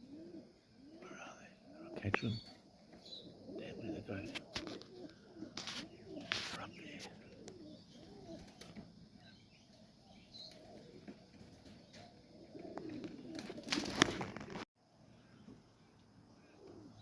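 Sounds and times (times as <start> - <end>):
pigeons cooing: 0.0 - 14.5, 16.4 - 17.0
wing flapping and wing claps: 12.8 - 14.6.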